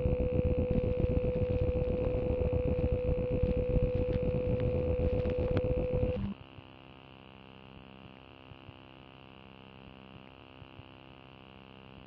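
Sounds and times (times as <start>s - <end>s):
steady transmitter tone: 0.0s - 6.4s
faint hum and static: 0.0s - 12.0s.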